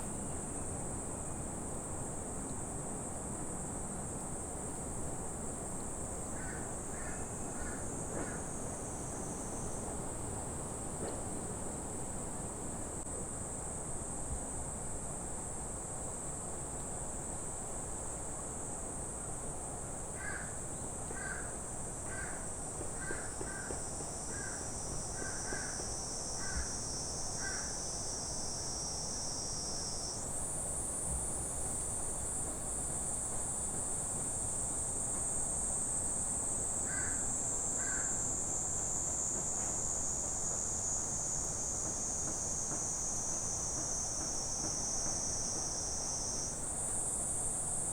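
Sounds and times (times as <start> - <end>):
high-pitched insect chorus: 20.2 - 47.9.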